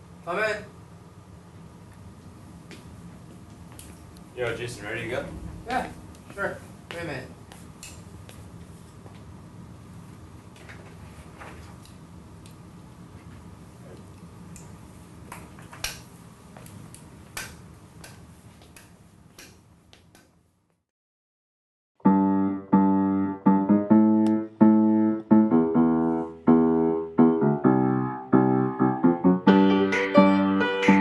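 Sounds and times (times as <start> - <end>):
slow piano notes and chords: 22.0 - 31.0.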